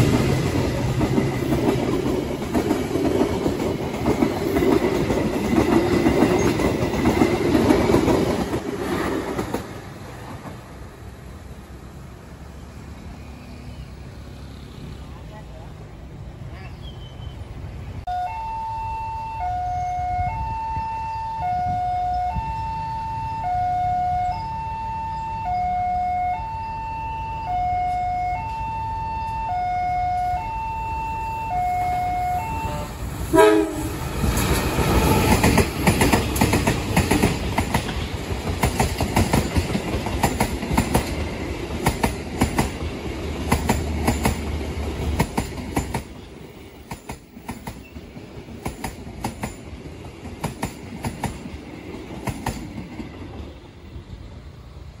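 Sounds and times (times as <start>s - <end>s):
train wheels clattering: 0.0s - 10.7s, 33.5s - 53.6s
level crossing warning bell: 18.1s - 32.9s
locomotive horn blast: 31.4s - 34.0s.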